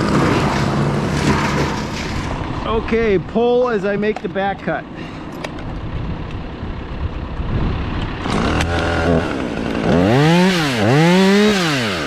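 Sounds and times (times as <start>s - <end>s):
chainsaw revving: 8.1s - 12.0s.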